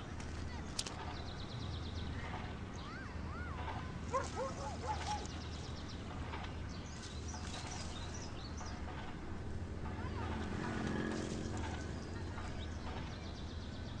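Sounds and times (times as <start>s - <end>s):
steady low hum: 0.0s - 14.0s
birds chirping and calling: 0.5s - 9.4s.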